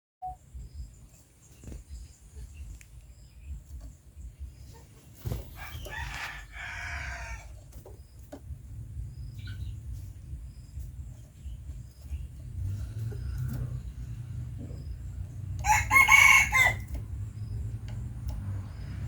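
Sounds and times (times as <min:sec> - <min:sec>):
steady low rumble: 0:00.4 - 0:15.9, 0:16.7 - 0:19.0
bird crowing: 0:05.6 - 0:07.6, 0:15.6 - 0:17.0.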